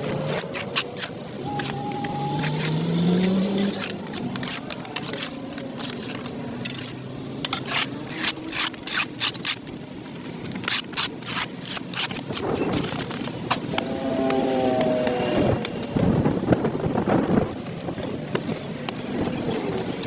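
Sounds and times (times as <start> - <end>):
hand tool scraping concrete: 0.0 - 9.7, 10.5 - 15.9.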